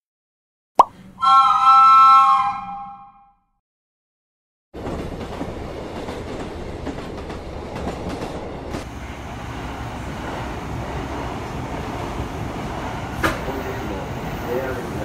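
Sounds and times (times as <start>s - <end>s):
trains running: 4.8s - 15.0s.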